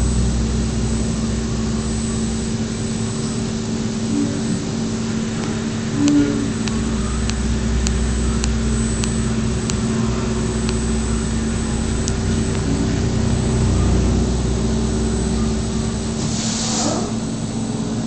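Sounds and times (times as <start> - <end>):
faint high whine: 0.0 - 18.0
machine hum: 0.0 - 18.0
sharp ticks: 5.4 - 12.7.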